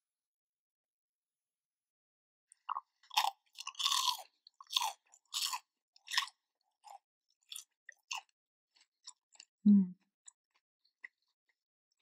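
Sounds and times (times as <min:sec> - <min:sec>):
crunchy chewing of fried chicken: 0:02.5 - 0:09.6, 0:10.2 - 0:12.0.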